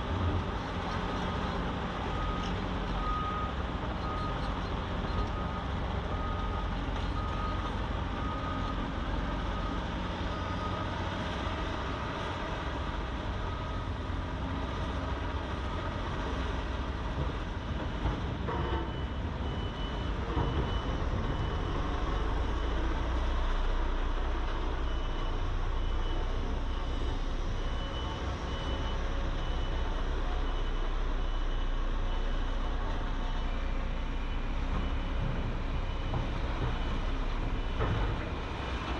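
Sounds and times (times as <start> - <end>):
construction machinery diesel rumble: 0.0 - 38.9
low-pitched back-up alarm beeping: 2.1 - 11.0, 15.5 - 38.9.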